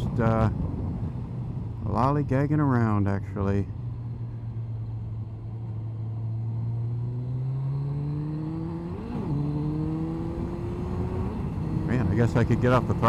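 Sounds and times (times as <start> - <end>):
motorcycle engine accelerating: 3.7 - 13.0.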